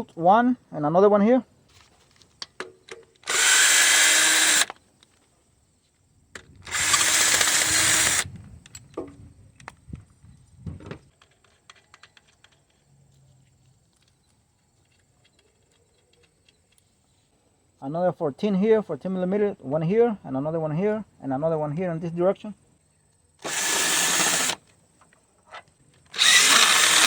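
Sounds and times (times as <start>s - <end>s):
cordless power driver spinning bolts: 3.2s - 4.8s, 6.4s - 8.9s, 23.4s - 24.7s, 26.1s - 27.0s.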